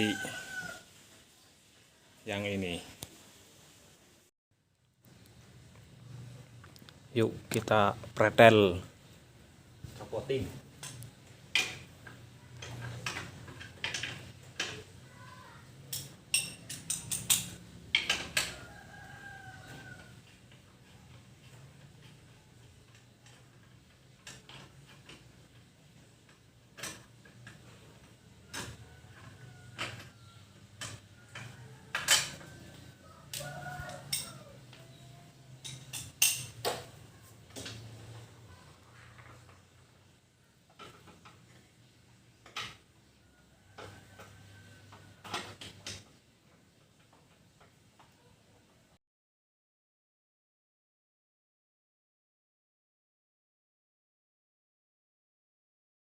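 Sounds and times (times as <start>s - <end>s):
rooster crowing: 0.0s - 1.0s, 18.4s - 20.3s, 28.4s - 35.4s, 43.1s - 45.3s
metal tools clinking and knocking: 10.8s - 14.9s, 15.9s - 18.5s, 26.2s - 32.8s, 33.4s - 36.9s, 40.7s - 41.5s
hand tools clinking on metal: 15.9s - 18.5s, 30.8s - 32.6s, 33.3s - 34.4s, 35.5s - 36.9s.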